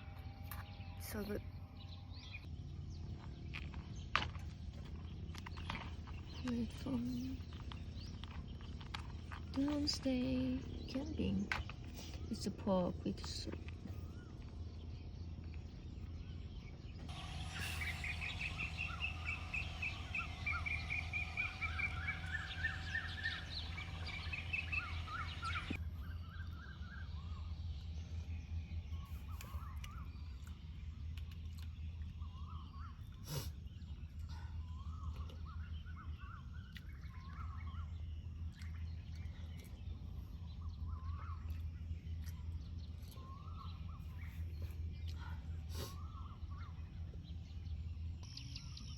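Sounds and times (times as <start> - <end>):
steady low rumble: 0.0 - 48.9
birds trilling: 16.0 - 30.6
short bird chirps: 17.1 - 26.6.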